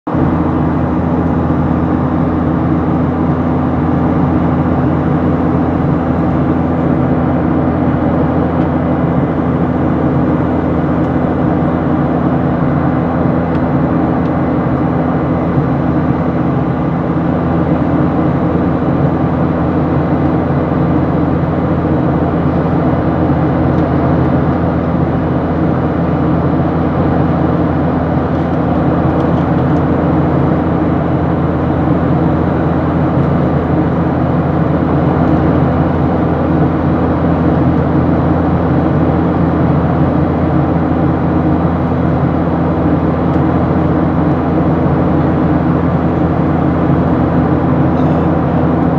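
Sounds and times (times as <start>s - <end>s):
airliner engines droning: 0.1s - 48.9s.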